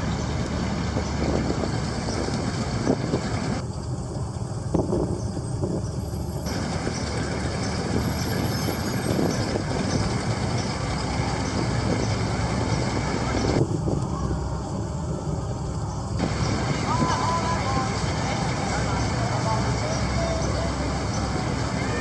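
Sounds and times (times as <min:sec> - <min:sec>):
cars driving past: 0:05.9 - 0:22.0.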